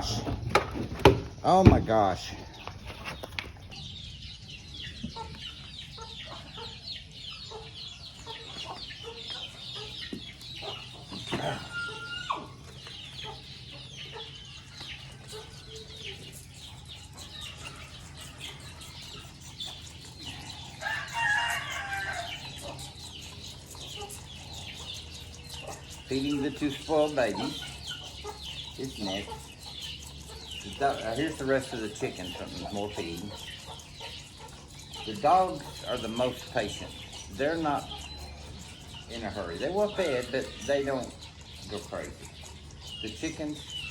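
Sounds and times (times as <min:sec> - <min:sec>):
chickens clucking: 0:00.0 - 0:43.9
chicken drawn-out call: 0:11.3 - 0:12.8, 0:20.2 - 0:22.7.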